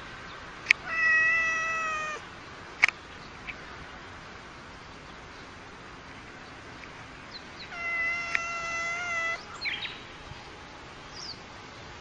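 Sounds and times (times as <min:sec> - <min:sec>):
cat yowling: 0:00.8 - 0:02.2, 0:07.7 - 0:09.4.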